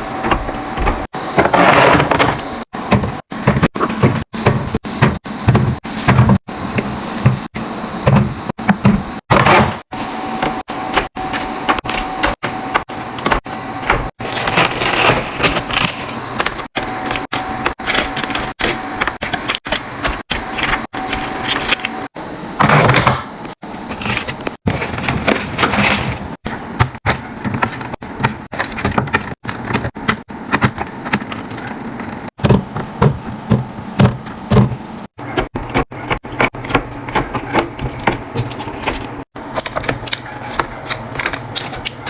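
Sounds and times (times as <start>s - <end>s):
containers clattering and rustling: 14.2s - 42.0s.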